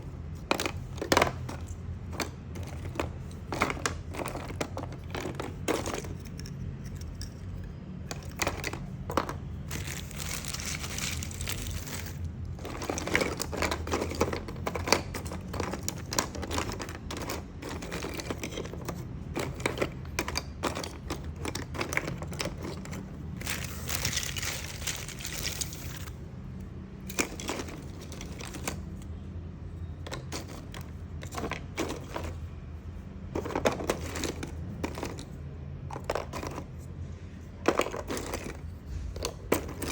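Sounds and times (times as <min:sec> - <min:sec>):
wood pieces clicking and knocking: 0:00.2 - 0:26.2, 0:27.0 - 0:29.1, 0:30.0 - 0:32.4, 0:33.3 - 0:36.8, 0:37.6 - 0:39.9
rustling: 0:08.1 - 0:19.6, 0:20.6 - 0:26.2.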